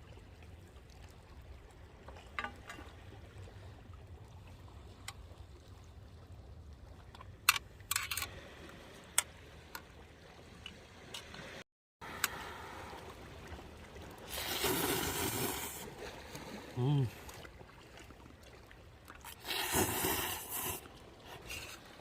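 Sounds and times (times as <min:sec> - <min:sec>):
wet noodle slurp: 0:14.3 - 0:15.8, 0:19.2 - 0:21.8.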